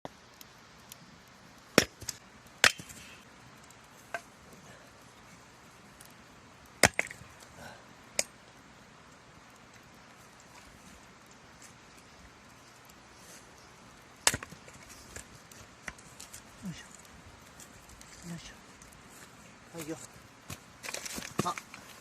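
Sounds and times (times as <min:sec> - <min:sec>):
axe chopping firewood: 0:01.7 - 0:03.2, 0:06.7 - 0:07.4, 0:14.2 - 0:16.4, 0:19.8 - 0:21.7.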